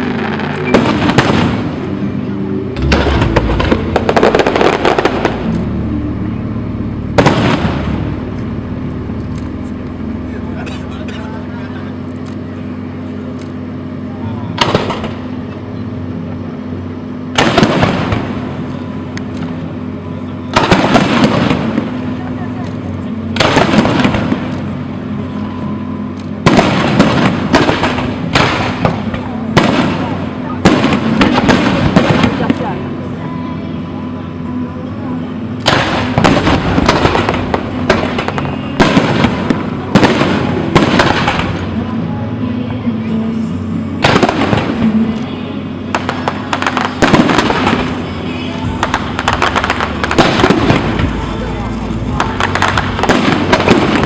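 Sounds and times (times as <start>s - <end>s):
firework bang: 0.0s - 1.9s, 2.8s - 5.9s, 7.1s - 8.4s, 14.6s - 15.2s, 17.3s - 18.6s, 20.5s - 22.1s, 23.4s - 24.5s, 26.4s - 32.7s, 35.6s - 41.7s, 44.0s - 44.9s, 45.9s - 48.0s, 48.7s - 51.4s, 52.2s - 54.0s
fireworks crackling: 0.0s - 15.5s, 17.1s - 33.2s, 35.4s - 42.4s, 43.4s - 54.0s.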